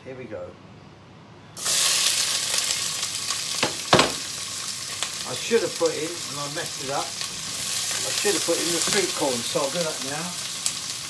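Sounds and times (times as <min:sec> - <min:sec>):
vegetables sizzling in oil: 0:01.6 - 0:11.0
sharp knock: 0:03.6 - 0:04.3.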